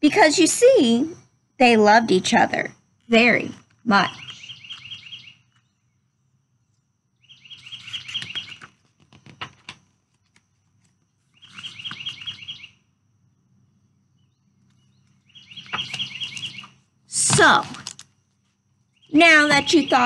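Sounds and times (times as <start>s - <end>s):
songbird trilling: 3.1s - 6.0s, 7.2s - 8.7s, 11.4s - 12.8s, 14.2s - 16.8s, 18.9s - 20.0s
book pages flipping: 7.7s - 12.5s, 14.6s - 16.8s, 17.6s - 18.6s.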